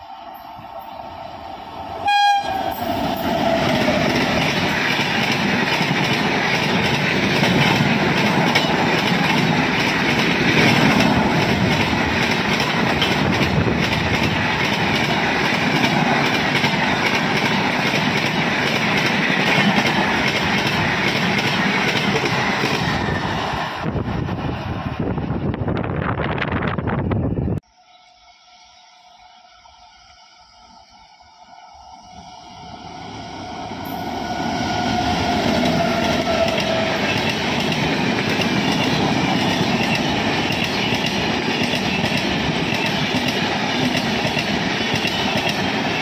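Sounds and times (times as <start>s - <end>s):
train horn: 2.0s - 4.3s, 33.9s - 37.3s.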